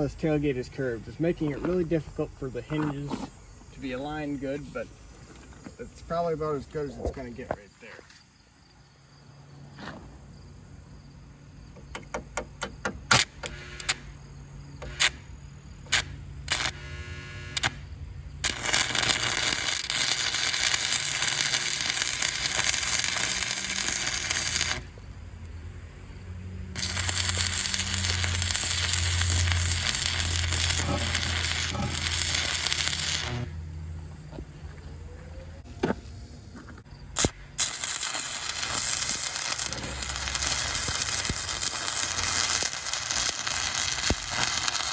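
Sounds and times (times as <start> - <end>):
welding arc sparking pops: 11.7 - 17.8, 18.4 - 25.1, 26.8 - 33.6, 37.1 - 44.9
arc welding crackling and hissing: 11.9 - 33.6, 37.0 - 44.9.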